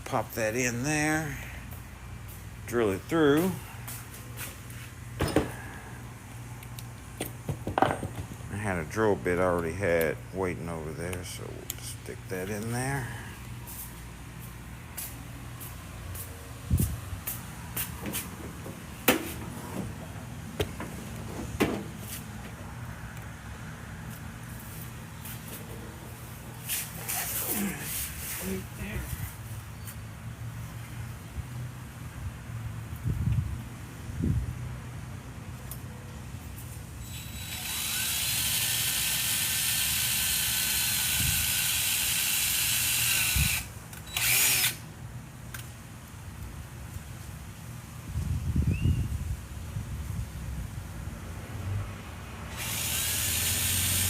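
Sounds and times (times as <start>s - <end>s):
steady low hum: 0.0s - 37.0s
power drill whining: 37.0s - 44.8s, 52.5s - 54.0s.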